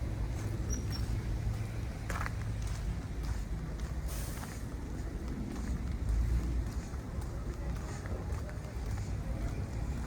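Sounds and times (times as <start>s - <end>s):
vehicles passing: 0.0s - 10.0s
short scuffing sound: 0.4s - 4.8s.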